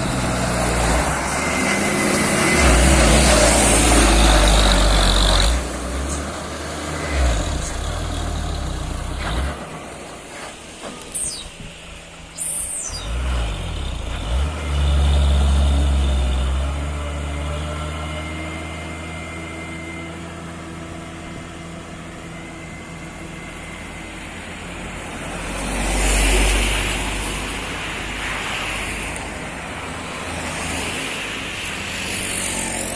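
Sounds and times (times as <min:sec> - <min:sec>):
vehicle passing by: 0:00.0 - 0:10.0.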